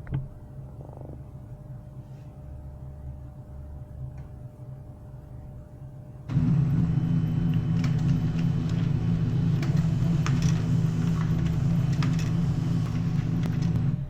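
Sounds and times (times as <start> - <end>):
laser printer motor humming: 6.3 - 14.0
paper path clicks and ticks: 6.3 - 14.0.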